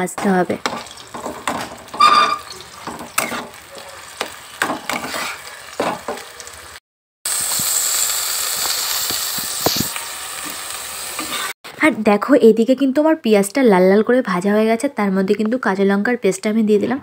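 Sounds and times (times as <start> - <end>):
onion paste sizzling in oil: 0.0 - 11.6
spatula scraping a pan: 0.2 - 6.2.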